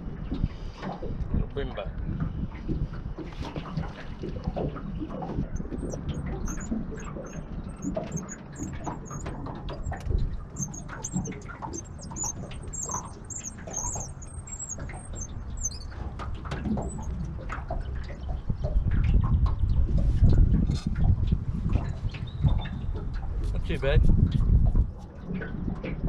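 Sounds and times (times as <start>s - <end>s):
small birds twittering: 5.4s - 17.2s.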